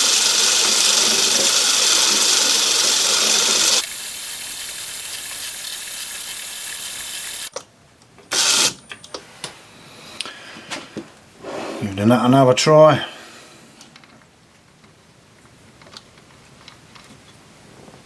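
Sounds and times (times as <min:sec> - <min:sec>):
lathe running: 0:00.0 - 0:07.5, 0:08.3 - 0:09.1
loud hiss: 0:00.0 - 0:07.5
clicks: 0:08.3 - 0:09.6.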